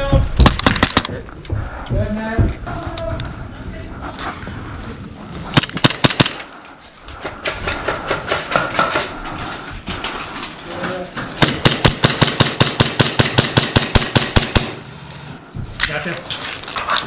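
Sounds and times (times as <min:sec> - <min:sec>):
airsoft rifles firing: 0:05.6 - 0:06.6, 0:11.4 - 0:14.8.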